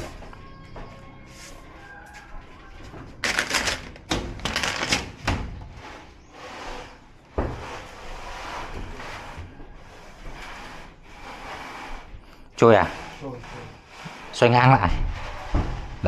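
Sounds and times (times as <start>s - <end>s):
plastic sheets rustling and clattering: 3.0s - 5.6s.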